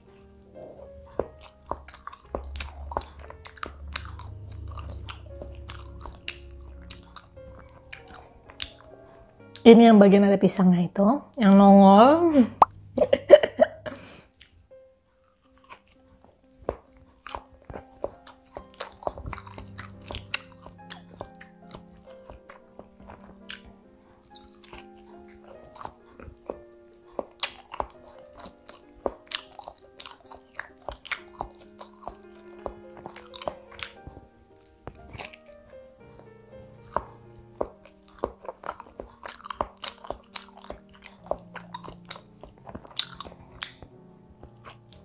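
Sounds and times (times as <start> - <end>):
chewing bread roll: 0.0 - 9.8, 14.2 - 45.0
soft background music: 0.0 - 45.0
wet mouth clicks: 16.7 - 35.5, 36.8 - 45.0.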